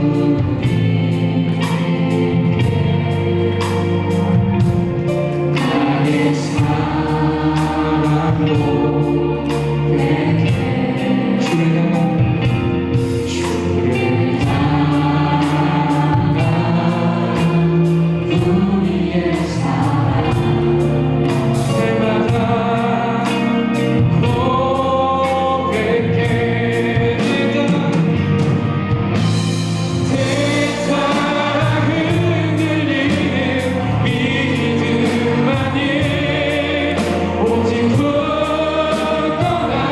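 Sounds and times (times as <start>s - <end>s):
voices singing together: 0.0s - 28.4s, 29.2s - 39.9s
worship band playing: 0.0s - 39.9s.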